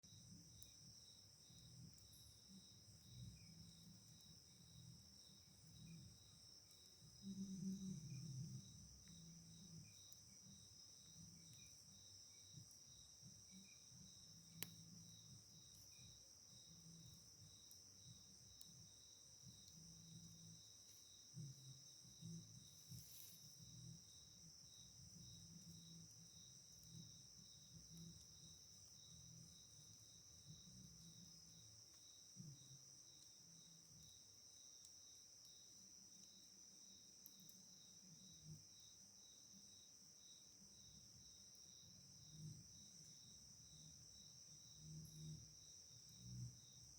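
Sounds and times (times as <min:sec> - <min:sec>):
crickets chirping: 0:00.0 - 0:46.9
faint low hum: 0:00.0 - 0:46.9.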